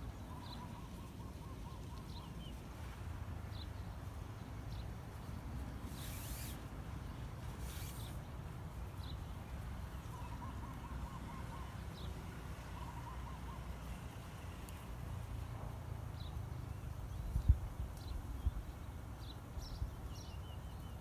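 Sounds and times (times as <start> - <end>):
bird calling in rapid trills: 0.1 - 2.6, 10.0 - 12.1.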